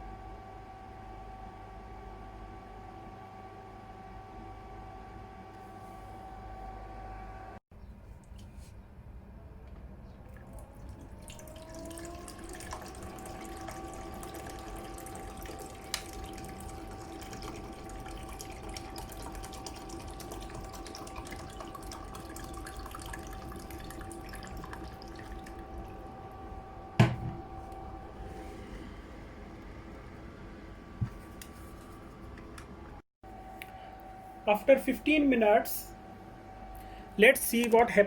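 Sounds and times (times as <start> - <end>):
air cooler fan whine: 0.0 - 38.0.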